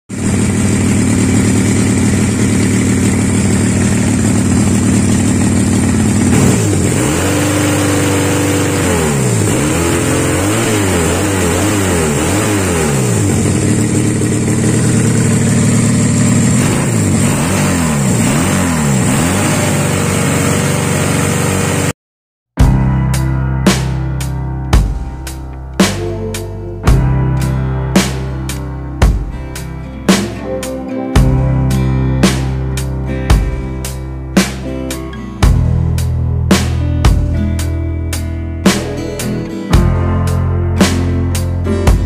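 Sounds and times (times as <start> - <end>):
motorbike engine idling: 0.1 - 10.0, 12.1 - 21.9
motorbike engine revving: 0.1 - 22.0.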